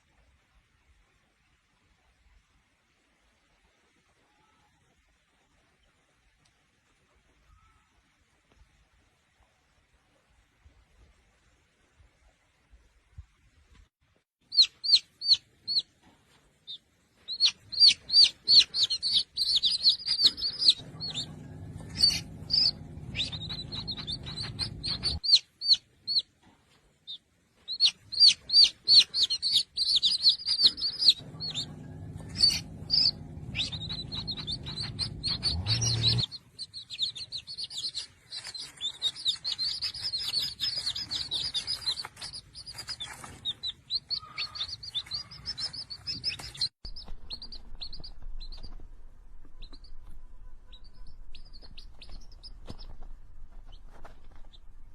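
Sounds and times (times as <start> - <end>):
small bird chirping: 14.4 - 26.3, 27.0 - 54.9
low steady hum: 20.3 - 25.2, 30.8 - 36.4.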